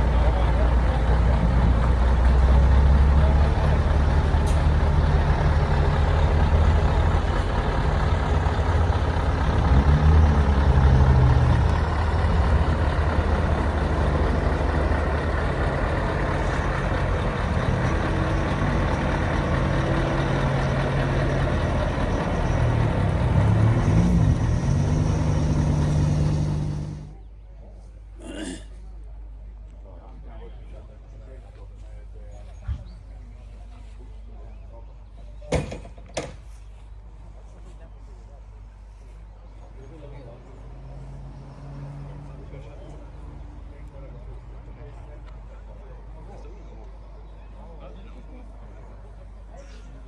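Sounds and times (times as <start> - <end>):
truck diesel engine running: 0.0 - 27.2.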